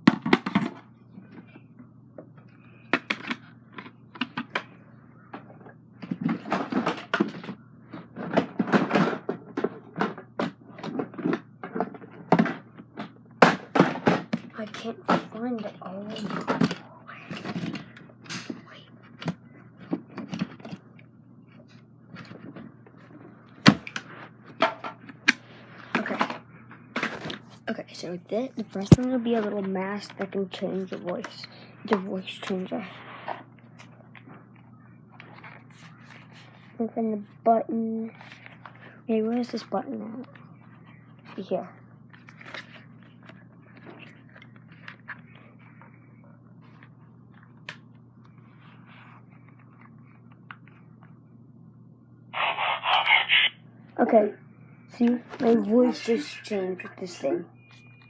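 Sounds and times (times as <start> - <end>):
faint hum: 0.0 - 58.0
objects being handled and knocked: 28.6 - 29.0.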